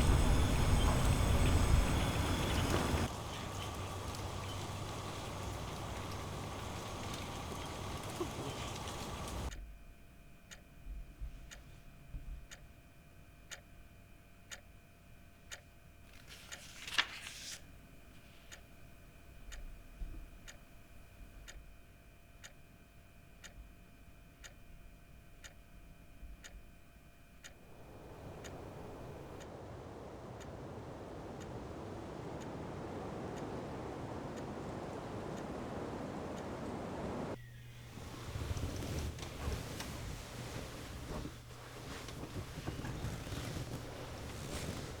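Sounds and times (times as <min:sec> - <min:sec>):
faint sustained tones: 0:00.0 - 0:09.5
steady hiss: 0:00.0 - 0:09.5, 0:27.6 - 0:45.0
clock ticking: 0:27.4 - 0:29.5, 0:30.4 - 0:36.9.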